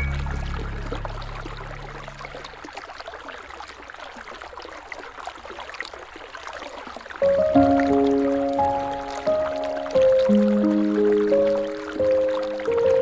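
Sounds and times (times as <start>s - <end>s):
low sustained music chord: 0.0s - 2.6s, 7.2s - 13.0s
river water flowing and trickling: 0.0s - 13.0s.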